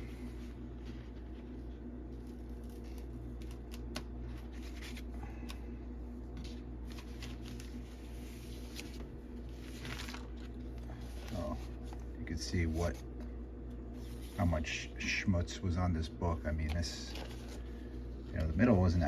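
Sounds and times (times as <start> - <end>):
steady low hum: 0.0 - 19.0
paper crinkling: 0.2 - 5.2, 6.4 - 13.0, 16.6 - 19.0.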